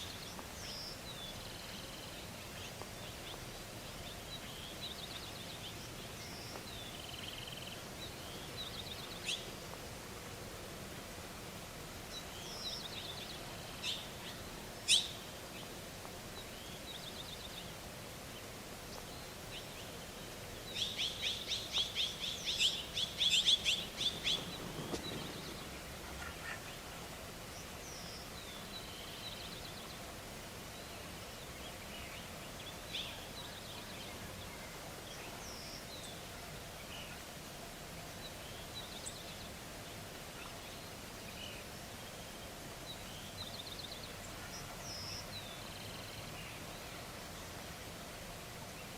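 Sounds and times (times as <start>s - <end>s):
small birds chirping: 0.0s - 9.8s, 12.1s - 37.3s.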